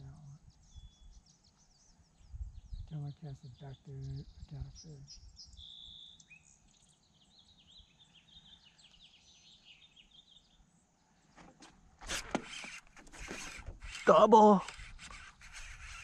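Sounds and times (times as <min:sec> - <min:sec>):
songbird chirps and trills: 0:00.0 - 0:11.8
sharp clicks and rustles: 0:11.4 - 0:16.0.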